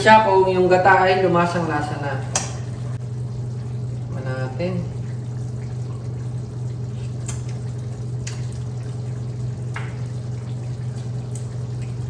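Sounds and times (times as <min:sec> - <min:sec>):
low steady hum: 0:00.0 - 0:12.0
food bubbling in a pan: 0:01.5 - 0:12.0.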